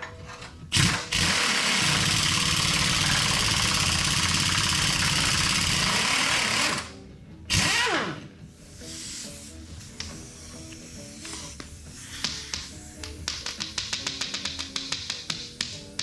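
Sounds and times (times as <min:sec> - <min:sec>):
pneumatic impact wrench hammering: 0:00.7 - 0:06.9, 0:07.5 - 0:08.2.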